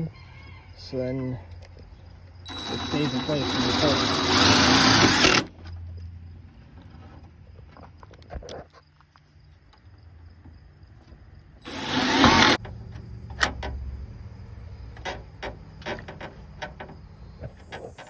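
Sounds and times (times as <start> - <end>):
power drill whirring: 2.5 - 5.5, 11.6 - 12.6.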